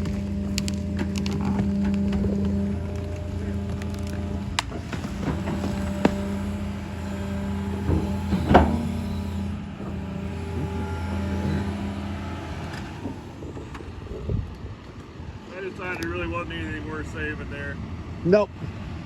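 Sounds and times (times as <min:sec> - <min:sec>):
wood and machinery knocks: 0:00.0 - 0:12.1
excavator engine running: 0:00.0 - 0:19.0.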